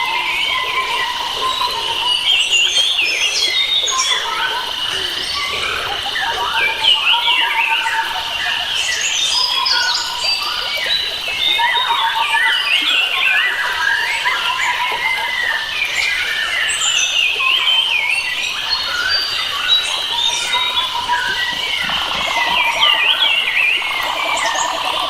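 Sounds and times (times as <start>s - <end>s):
wild birds chirping and trilling: 0.0s - 25.0s
high-pitched insect-like drone: 18.5s - 25.0s.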